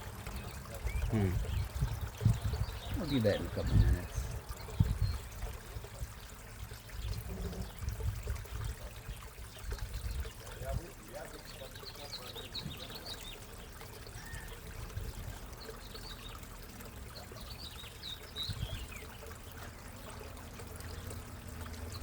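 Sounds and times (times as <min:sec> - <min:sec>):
pond water trickling: 0:00.0 - 0:22.0.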